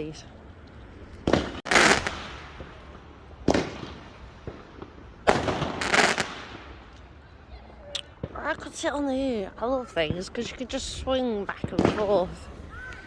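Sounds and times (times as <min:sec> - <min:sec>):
fireworks bangs echoing: 0:01.2 - 0:07.2, 0:08.1 - 0:09.2, 0:09.9 - 0:13.0.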